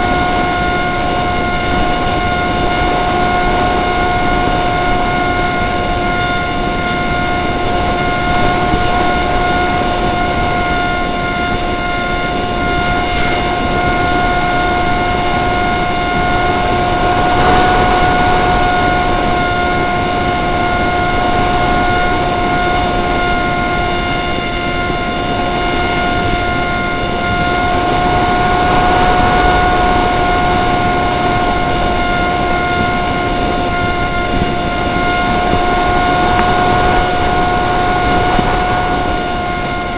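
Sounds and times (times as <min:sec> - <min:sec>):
model plane motor whining: 0:00.0 - 0:39.9
wind noise on microphone: 0:00.0 - 0:39.9.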